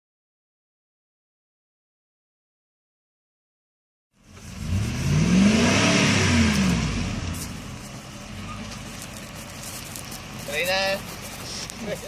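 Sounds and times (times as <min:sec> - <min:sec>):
vehicle engine revving: 0:04.2 - 0:12.0.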